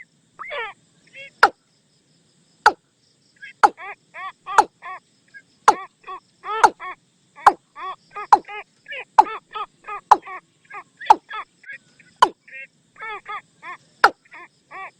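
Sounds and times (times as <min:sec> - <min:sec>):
watercock calling: 0:03.4 - 0:03.8, 0:05.7 - 0:05.9, 0:06.5 - 0:07.6, 0:09.2 - 0:09.4, 0:10.1 - 0:10.3.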